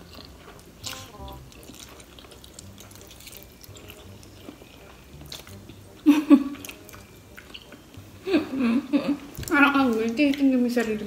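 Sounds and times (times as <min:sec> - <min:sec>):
chewing noodles: 0:00.0 - 0:08.0.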